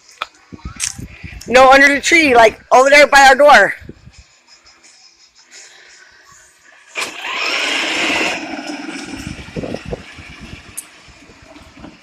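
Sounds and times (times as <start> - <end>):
vehicle engine passing: 6.9 - 11.7.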